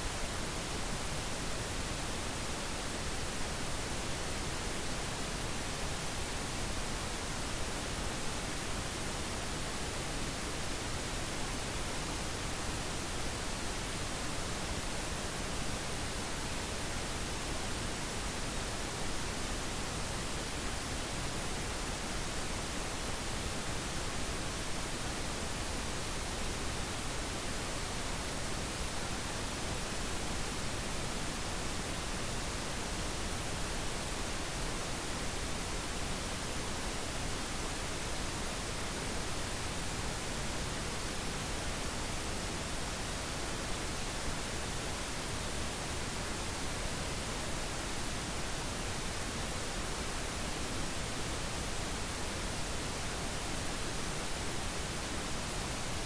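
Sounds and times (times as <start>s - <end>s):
pink noise hiss: 0.0s - 56.0s.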